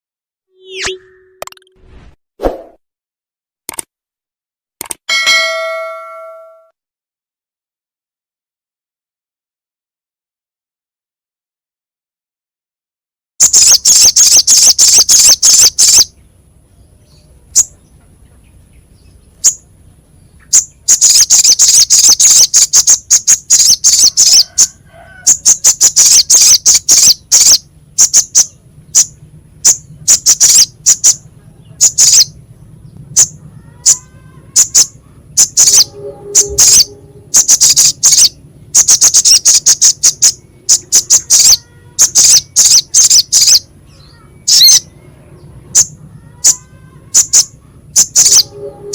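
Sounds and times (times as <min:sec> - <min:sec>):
bird chattering trills: 0:13.4 - 0:48.9.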